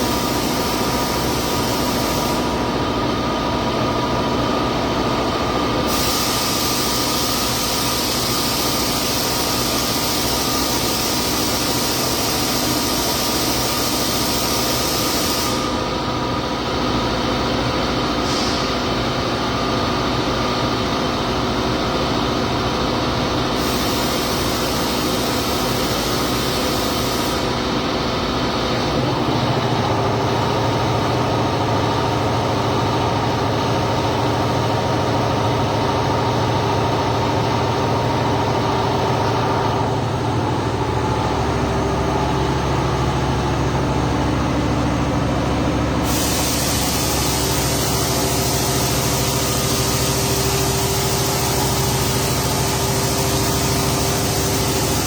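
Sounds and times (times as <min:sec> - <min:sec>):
hiss: 0:00.0 - 0:02.6, 0:05.9 - 0:15.9, 0:18.2 - 0:18.9, 0:23.6 - 0:27.6, 0:46.0 - 0:55.0
machine humming: 0:35.4 - 0:55.0.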